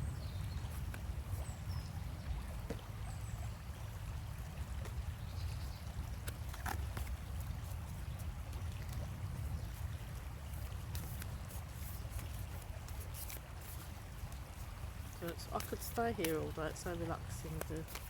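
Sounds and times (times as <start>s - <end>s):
river water flowing: 0.0s - 18.0s
faint clicks and taps: 15.2s - 18.0s.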